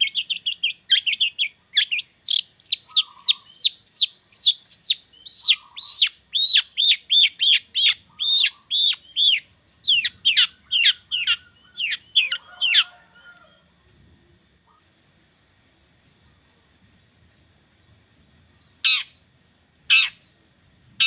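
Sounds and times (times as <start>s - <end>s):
shrike calling: 0.0s - 14.8s, 18.8s - 19.2s, 19.9s - 20.3s.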